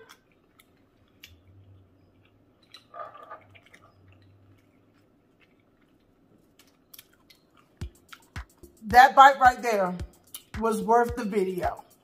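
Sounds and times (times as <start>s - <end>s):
wet chewing: 0.0s - 8.8s, 10.2s - 10.6s
small mouth clicks: 5.4s - 8.7s, 10.2s - 10.6s.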